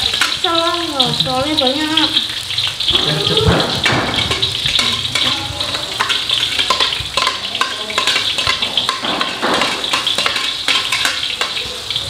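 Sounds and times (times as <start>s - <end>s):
paste sizzling in hot oil: 0.0s - 12.0s
metal ladle scraping and knocking: 3.5s - 11.6s.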